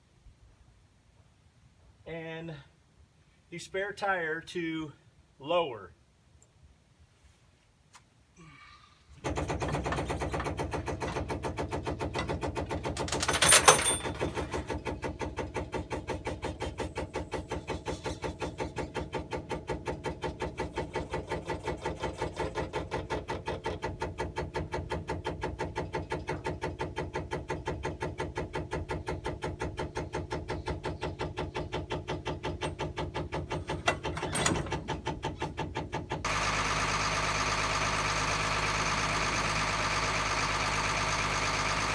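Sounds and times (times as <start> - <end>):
metal clank: 13.0 - 14.7
hydraulic pump pulsing: 14.3 - 38.0.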